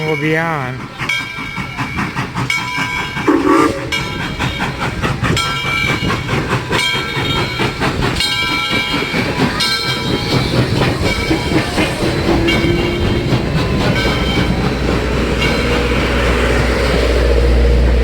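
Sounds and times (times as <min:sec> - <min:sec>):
train wheels rumbling and clattering: 0:00.0 - 0:18.0
high wheel squeal: 0:03.2 - 0:04.6.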